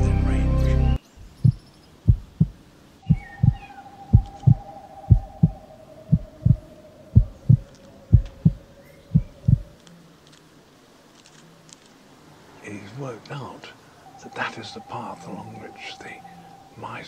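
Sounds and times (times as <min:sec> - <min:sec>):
heartbeat thumps: 0:01.2 - 0:09.7.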